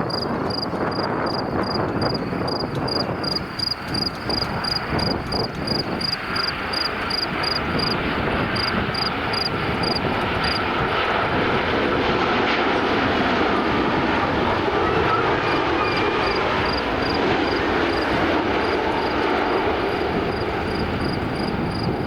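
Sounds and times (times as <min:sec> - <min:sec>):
jet engine rush: 0:00.0 - 0:22.0
jet engine whine: 0:00.0 - 0:22.0.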